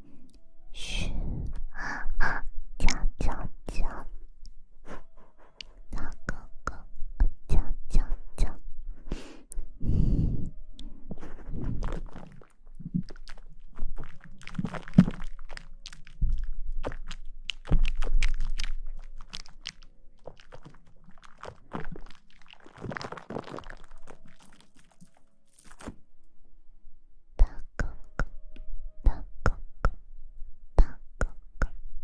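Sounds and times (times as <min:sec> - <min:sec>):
crinkling rustling: 0:11.6 - 0:26.0.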